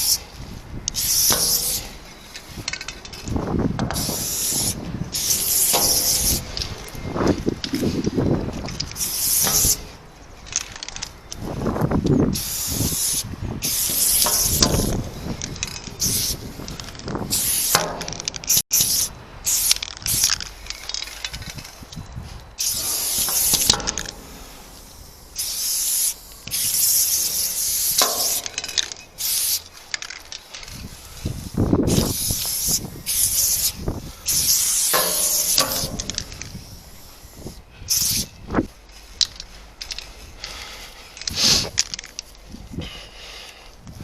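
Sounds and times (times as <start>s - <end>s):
spray paint can hissing: 0.0s - 2.0s, 3.8s - 6.7s, 8.7s - 11.1s, 12.3s - 21.8s, 22.6s - 38.3s.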